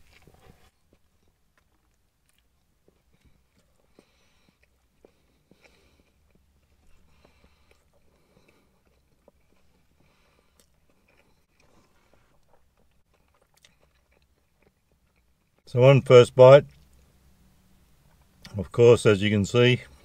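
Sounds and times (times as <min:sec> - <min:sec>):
person chewing: 0:00.0 - 0:15.6.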